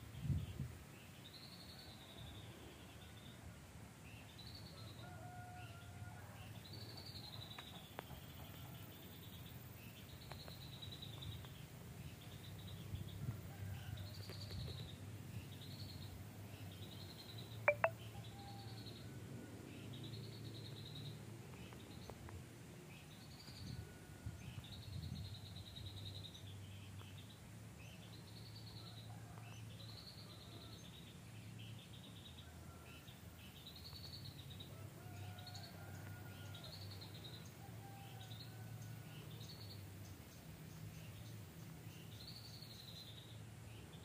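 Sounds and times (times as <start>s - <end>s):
songbird chattering: 17.7s - 18.0s.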